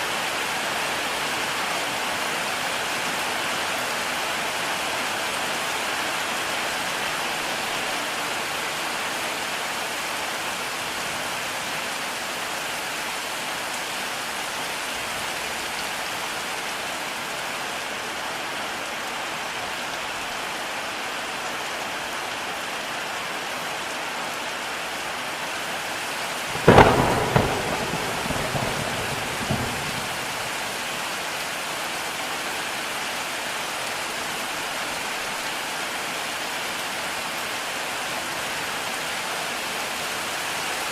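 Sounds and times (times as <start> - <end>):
heavy rain: 0.0 - 40.9
thunderclap: 26.5 - 30.7.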